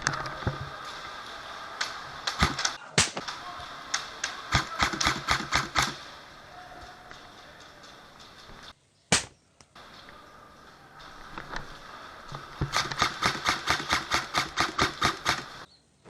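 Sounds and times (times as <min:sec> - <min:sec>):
airsoft guns firing: 0:01.9 - 0:06.2, 0:09.1 - 0:09.4, 0:12.4 - 0:15.7.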